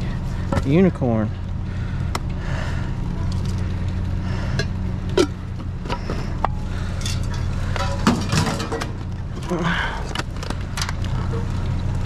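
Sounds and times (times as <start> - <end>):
steady low hum: 0.0 - 12.0
junk knocking and rustling: 3.2 - 11.7.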